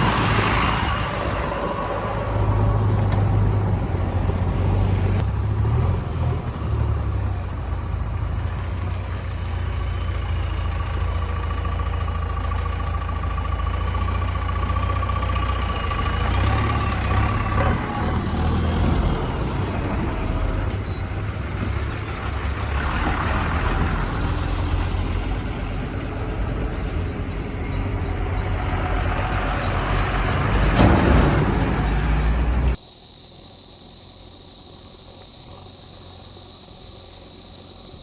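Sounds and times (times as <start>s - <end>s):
diesel engine running: 0.0s - 32.8s.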